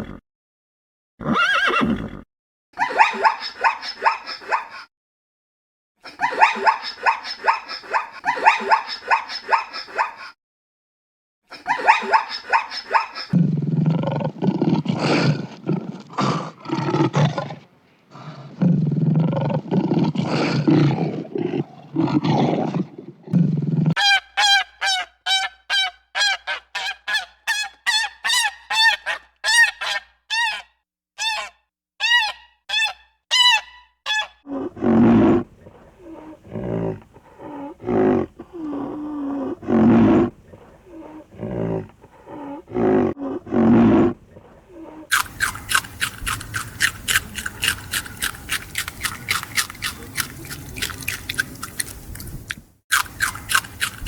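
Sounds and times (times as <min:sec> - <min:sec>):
rough low animal calls: 0:34.5 - 0:54.0.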